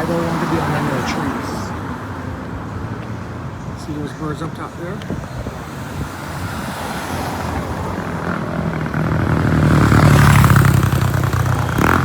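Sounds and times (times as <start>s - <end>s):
vehicle engine running: 8.1s - 12.0s.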